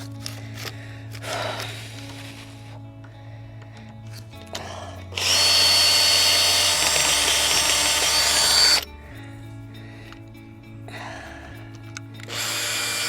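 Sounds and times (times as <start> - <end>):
power drill whining: 0.0 - 2.8, 4.5 - 8.9, 12.2 - 13.0.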